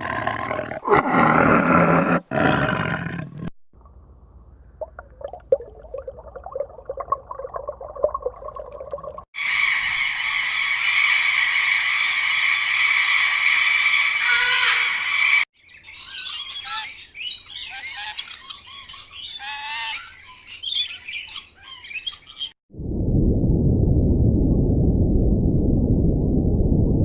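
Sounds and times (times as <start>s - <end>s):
birds calling: 9.4s - 22.6s.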